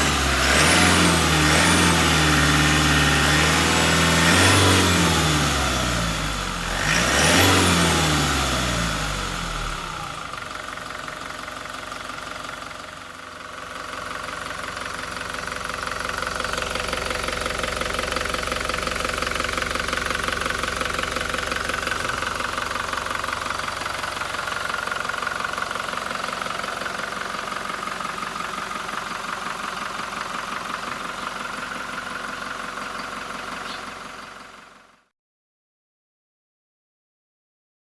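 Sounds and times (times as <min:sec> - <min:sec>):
diesel engine revving and idling: 0:00.0 - 0:34.9.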